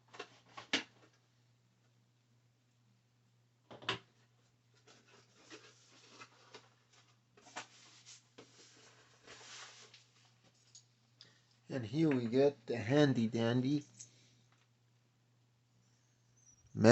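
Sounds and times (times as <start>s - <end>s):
cardboard and paper rustling: 4.7s - 10.5s.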